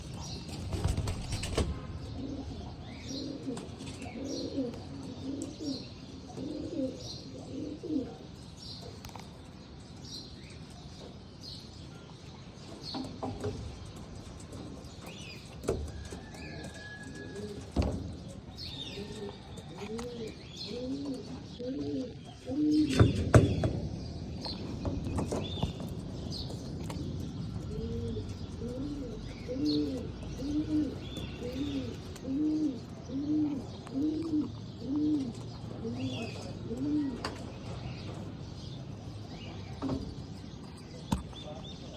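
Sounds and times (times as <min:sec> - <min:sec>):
pigeons cooing: 0:00.0 - 0:09.0, 0:14.5 - 0:23.8, 0:24.9 - 0:38.7.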